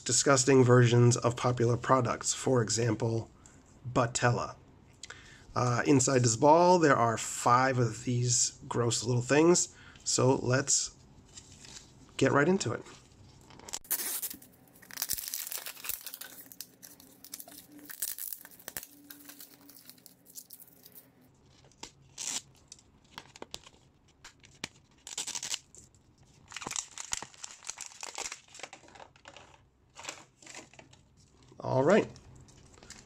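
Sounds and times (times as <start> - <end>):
packaging tearing and crinkling: 13.5 - 31.0.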